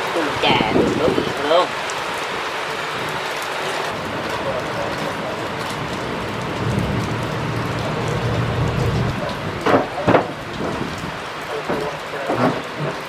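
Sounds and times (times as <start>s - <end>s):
heavy rain hissing: 0.0s - 13.0s
low rumble: 4.0s - 9.7s.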